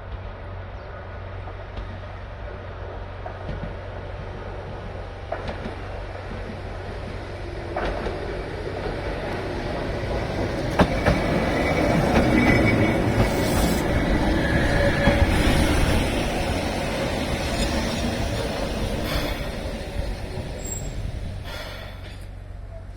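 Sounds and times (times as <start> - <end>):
electric train on rails: 0.0 - 22.9
high wheel squeal: 10.2 - 22.1.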